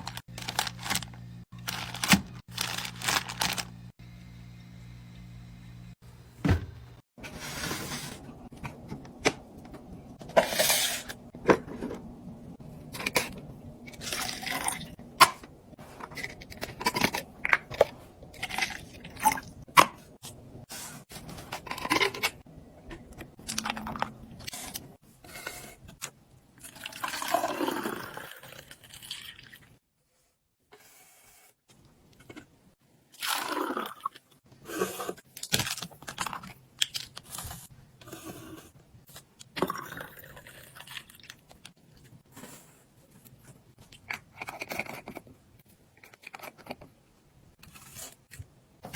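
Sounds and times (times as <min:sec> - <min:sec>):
packaging rustling: 0:00.0 - 0:03.8.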